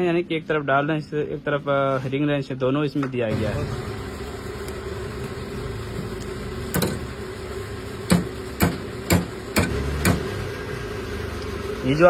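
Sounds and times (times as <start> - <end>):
steady background hum: 3.8 - 12.0
hand tool knocking on metal: 8.1 - 10.4.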